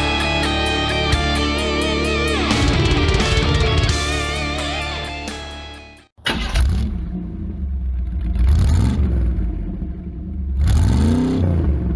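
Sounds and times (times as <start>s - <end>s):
music: 0.0s - 6.1s.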